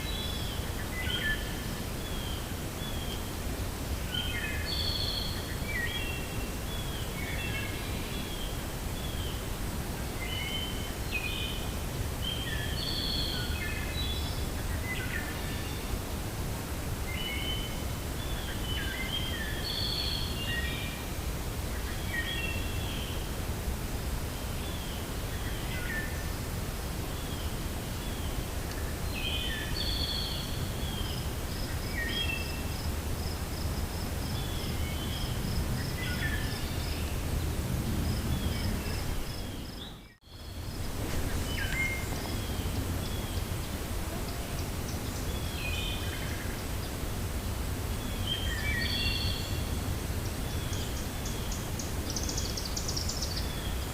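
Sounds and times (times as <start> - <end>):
low wind rumble: 0.0 - 53.9
small birds chirping: 27.1 - 47.1.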